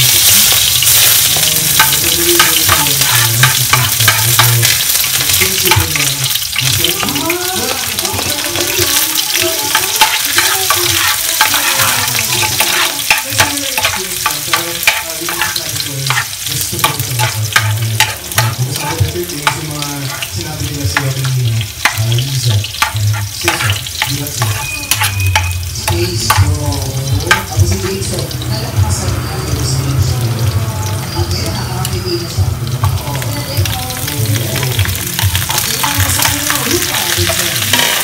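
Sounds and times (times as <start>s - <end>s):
metal spatula scraping pan: 0.0s - 29.0s
onions sizzling in oil: 0.0s - 38.0s.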